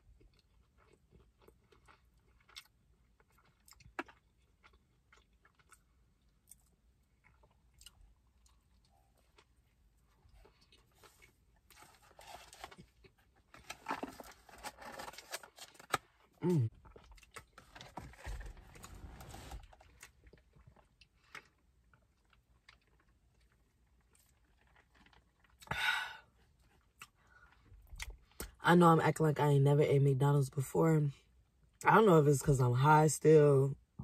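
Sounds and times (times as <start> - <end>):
person chewing: 0.0 - 14.2, 15.9 - 17.9
person humming: 16.4 - 16.7.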